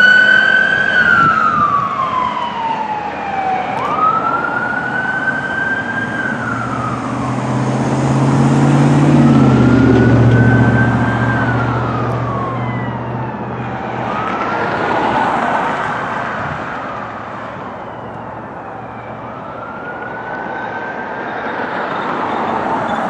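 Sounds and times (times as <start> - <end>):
fire siren wailing: 0.0 - 23.0
heavy truck engine drone: 0.0 - 23.0.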